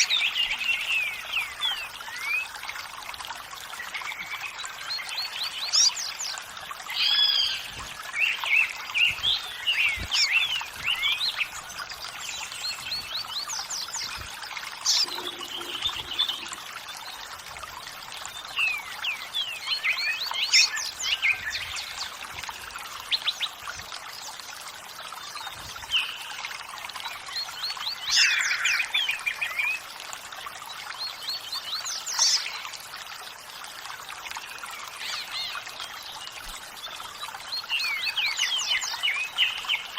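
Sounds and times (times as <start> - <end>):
water trickling: 0.0 - 39.9
birds singing and chirping: 3.8 - 17.3, 18.2 - 23.6.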